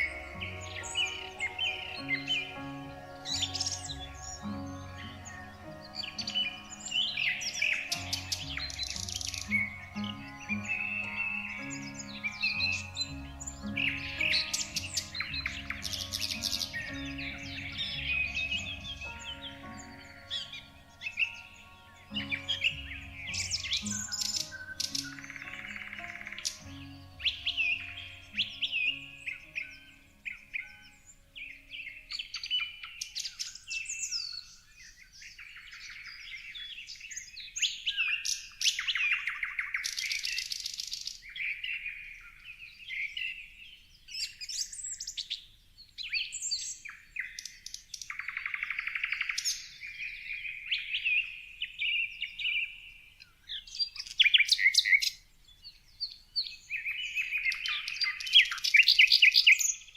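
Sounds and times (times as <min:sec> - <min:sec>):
faint low music tones: 0:00.0 - 0:46.9
songbirds chirping and trilling: 0:00.0 - 0:59.9.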